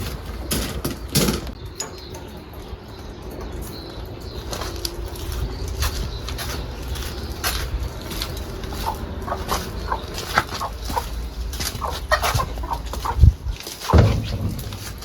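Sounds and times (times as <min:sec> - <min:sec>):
chickens clucking: 0:00.0 - 0:15.0
clicks and rustles: 0:10.2 - 0:15.0.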